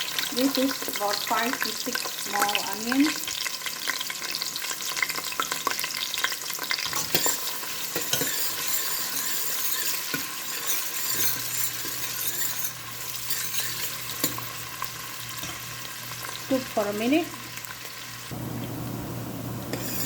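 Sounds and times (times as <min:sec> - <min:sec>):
onions sizzling in a pan: 0:00.0 - 0:20.0
utensil scraping a pan: 0:06.9 - 0:14.8, 0:19.7 - 0:20.0.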